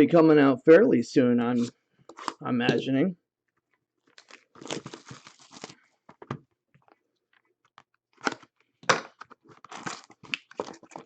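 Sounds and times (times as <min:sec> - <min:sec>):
cardboard packaging ripping and crinkling: 0:04.1 - 0:06.0, 0:09.4 - 0:11.0.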